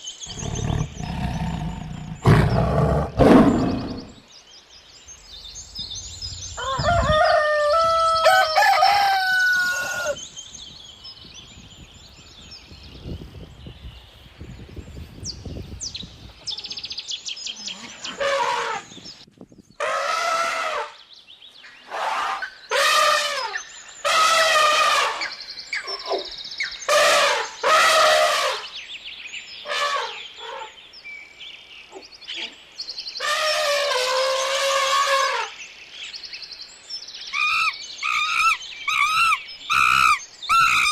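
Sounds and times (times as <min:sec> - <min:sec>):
small birds chirping: 0:00.0 - 0:19.8, 0:23.4 - 0:27.8, 0:28.6 - 0:33.3, 0:34.2 - 0:40.9
chickens calling: 0:06.4 - 0:10.2, 0:37.3 - 0:40.9
rooster crowing: 0:06.6 - 0:10.2.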